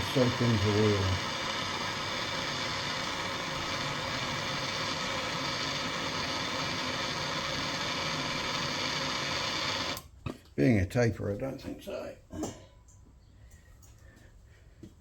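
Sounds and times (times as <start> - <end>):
machine running: 0.0 - 10.0.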